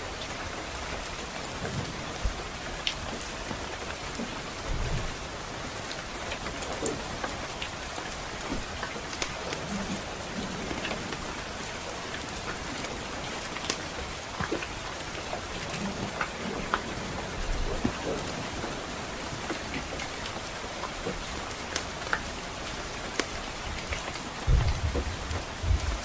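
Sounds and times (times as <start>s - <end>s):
soft rain hissing: 0.0s - 26.0s
wood fire crackling: 0.0s - 26.0s.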